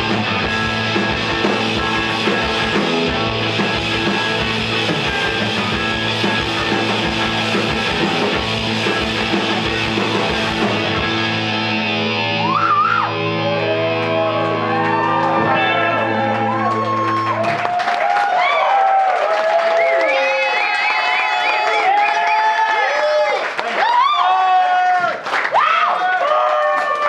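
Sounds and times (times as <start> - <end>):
drum kit: 0.0 - 15.1
electric guitar: 0.0 - 17.6.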